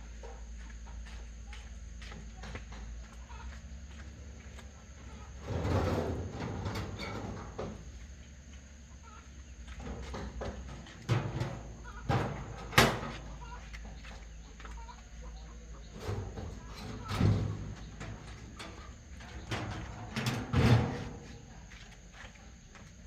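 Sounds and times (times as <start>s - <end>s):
knocks and clunks: 5.0s - 8.0s, 9.6s - 14.2s, 15.6s - 21.8s.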